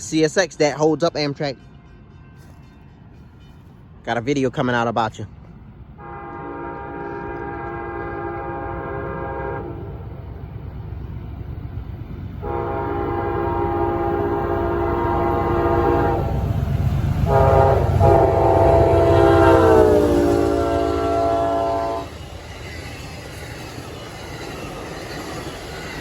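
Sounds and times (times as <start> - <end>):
diesel and rail rumble: 0.0 - 26.0
train air horn blasts: 6.0 - 10.0, 12.4 - 16.5, 17.2 - 22.1.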